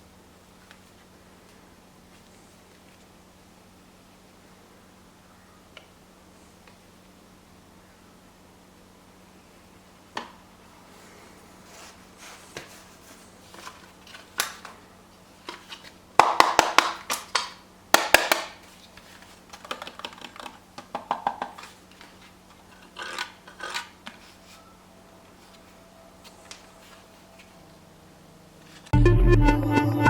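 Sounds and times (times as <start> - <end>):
faint steady hum: 0.0 - 30.0
clicks and knocks of handling: 15.4 - 24.4.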